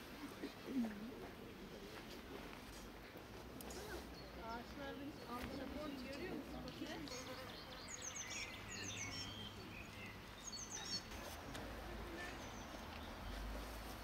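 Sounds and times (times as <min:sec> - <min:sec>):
small birds chirping: 0:03.7 - 0:11.3.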